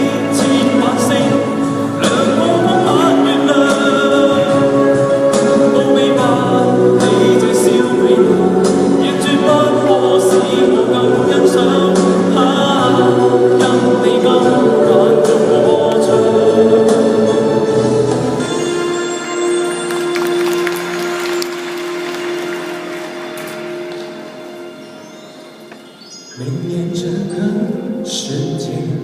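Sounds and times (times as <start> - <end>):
vocal group singing in harmony: 0.0 - 19.1.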